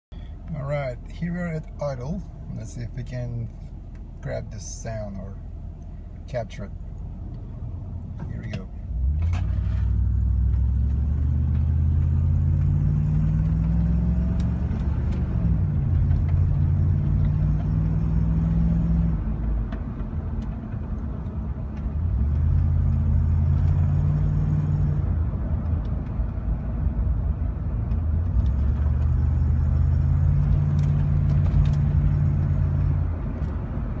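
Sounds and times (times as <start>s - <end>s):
car engine idling: 0.1s - 12.8s.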